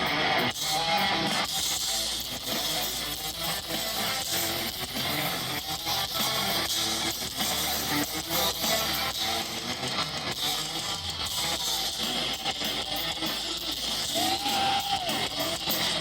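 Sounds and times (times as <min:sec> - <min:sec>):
heavy metal music: 0:00.0 - 0:16.0.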